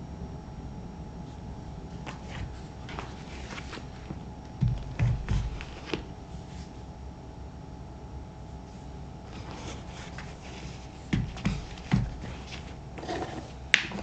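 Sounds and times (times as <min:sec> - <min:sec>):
light taps and rustles of boots: 0:02.1 - 0:06.1, 0:10.1 - 0:12.8
boots thumping on a surface: 0:04.1 - 0:06.1, 0:09.4 - 0:14.0.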